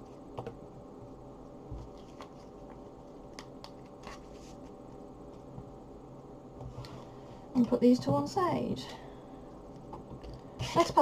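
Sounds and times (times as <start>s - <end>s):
card sleeves rustling and clicking: 1.8s - 4.8s.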